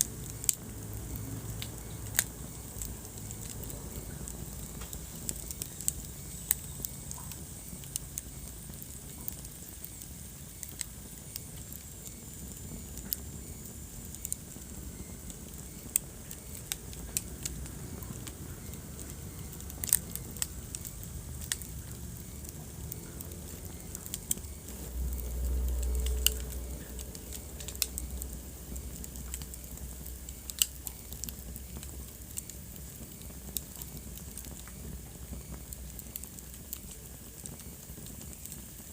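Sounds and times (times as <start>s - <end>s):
low fire rumble: 0.0s - 38.9s
wood fire crackling: 0.0s - 38.9s.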